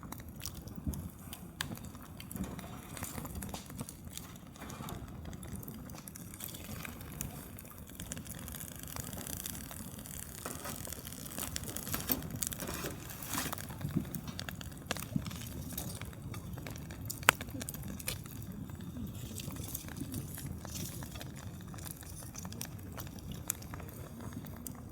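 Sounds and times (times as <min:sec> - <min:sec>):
campfire crackling and popping: 0:00.0 - 0:24.9.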